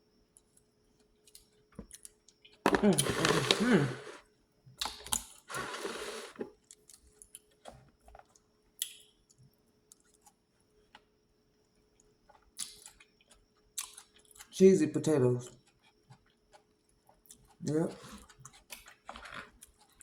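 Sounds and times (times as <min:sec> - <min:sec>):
short rustling: 0:02.7 - 0:04.2, 0:05.5 - 0:06.5.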